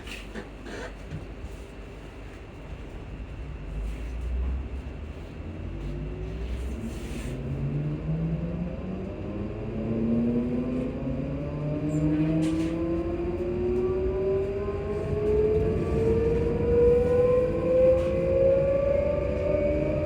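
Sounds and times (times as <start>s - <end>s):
low rumble of train running: 0.0s - 20.0s
train traction motors whining: 7.9s - 20.0s.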